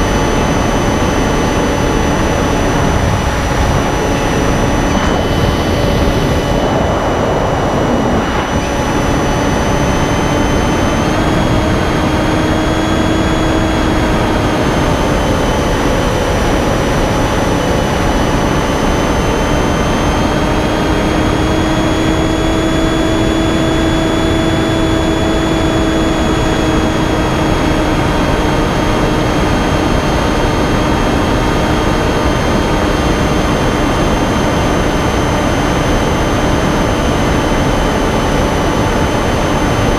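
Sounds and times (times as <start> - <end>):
electric motor and propeller whining: 0.0 - 39.9
wind rushing: 0.9 - 18.6.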